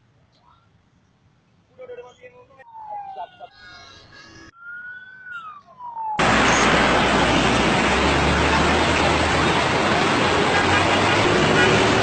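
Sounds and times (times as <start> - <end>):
siren wail: 2.6 - 3.8, 4.5 - 8.6
loud steady rushing noise: 6.2 - 12.0.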